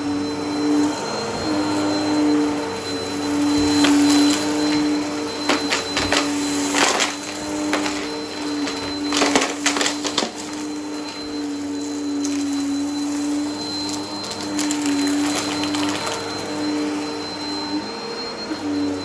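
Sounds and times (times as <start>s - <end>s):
vacuum cleaner motor hum: 0.0s - 19.0s
debris crackling in vacuum: 3.5s - 16.5s.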